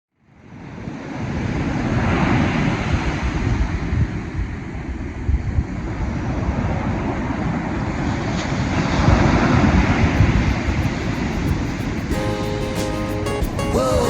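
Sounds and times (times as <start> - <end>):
wind buffeting microphone: 1.4 - 12.2
waves washing: 7.4 - 14.0.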